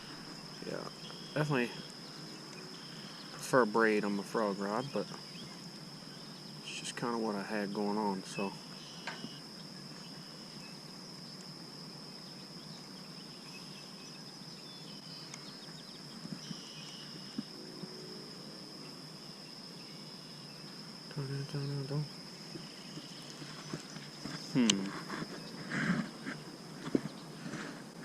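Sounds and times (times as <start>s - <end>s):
insects droning: 0.0s - 28.0s
low outdoor hiss: 0.0s - 28.0s
low voice-like sound: 24.5s - 25.0s.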